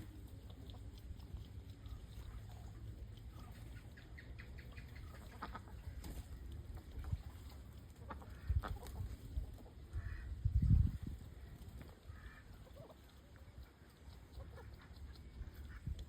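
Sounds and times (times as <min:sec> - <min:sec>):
water splashing: 0:00.0 - 0:09.2
ducks quacking: 0:03.3 - 0:06.2, 0:07.9 - 0:10.4, 0:12.0 - 0:13.0, 0:13.7 - 0:15.9.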